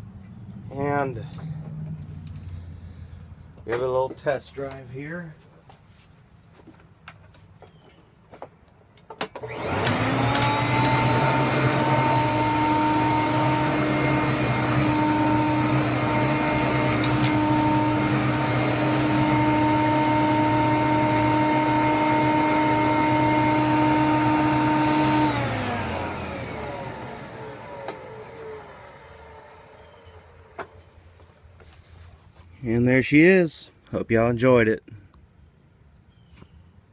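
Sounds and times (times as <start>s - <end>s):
vacuum cleaner motor whining: 9.3s - 30.8s.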